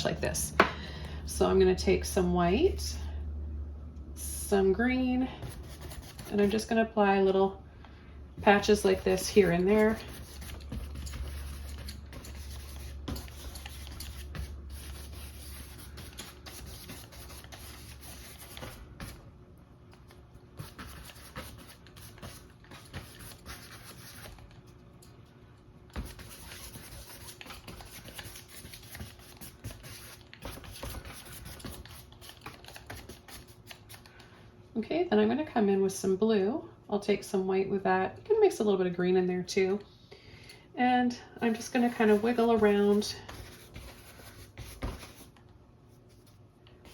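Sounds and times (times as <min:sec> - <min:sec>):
paintbrush scrubbing on canvas: 0:08.5 - 0:19.2, 0:41.5 - 0:45.3.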